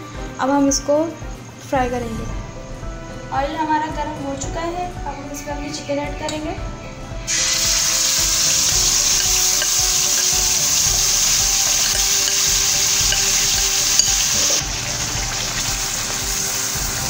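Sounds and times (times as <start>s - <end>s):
chicken sizzling in hot oil: 7.3s - 17.0s.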